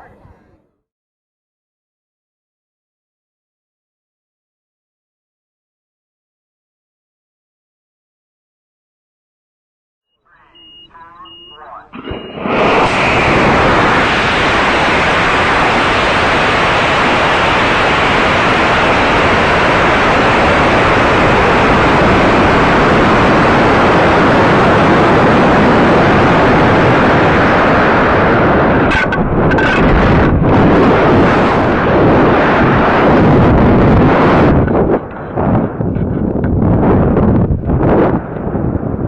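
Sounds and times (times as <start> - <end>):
rocket engine roaring: 10.4 - 39.0.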